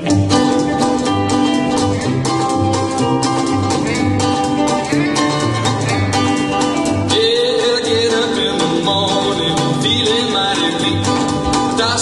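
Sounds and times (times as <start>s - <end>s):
band music with drums bass guitar: 0.0s - 12.0s.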